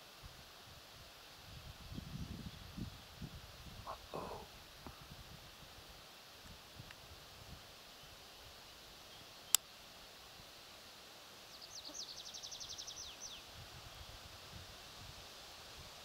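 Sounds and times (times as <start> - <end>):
faint woodland background: 0.0 - 16.0
songbird trill: 7.9 - 9.7, 11.4 - 13.6.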